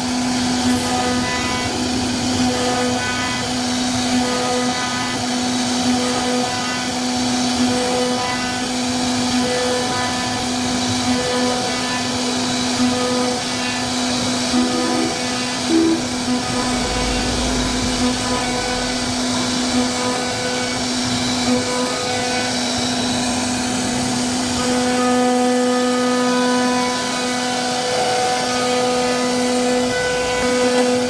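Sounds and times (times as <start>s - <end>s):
cnc router spindle whine: 0.0s - 21.0s.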